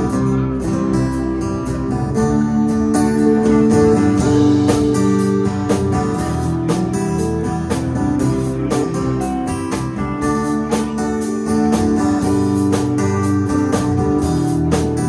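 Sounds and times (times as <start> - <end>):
guitars: 0.0 - 15.0
live band playing: 0.0 - 15.0
drums beating: 3.3 - 15.0.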